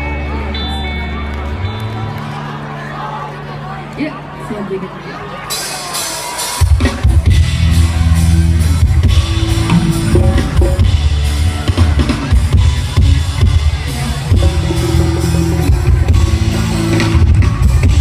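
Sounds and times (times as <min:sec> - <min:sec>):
bass guitar: 0:00.0 - 0:03.7, 0:06.4 - 0:18.0
guitar: 0:00.0 - 0:18.0
drum kit: 0:05.5 - 0:18.0.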